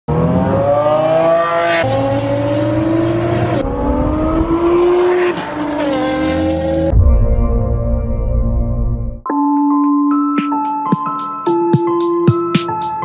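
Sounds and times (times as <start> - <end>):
car engines accelerating hard: 0.1 - 6.9.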